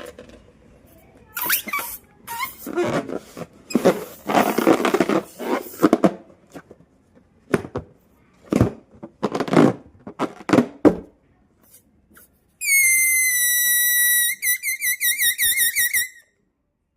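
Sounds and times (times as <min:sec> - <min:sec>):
rubber balloon rubbing and rustling: 0:01.4 - 0:06.3.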